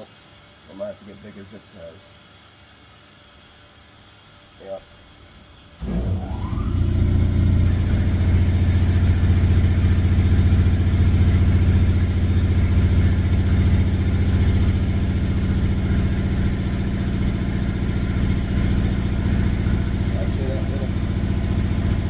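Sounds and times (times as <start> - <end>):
engine idling: 5.8 - 22.0.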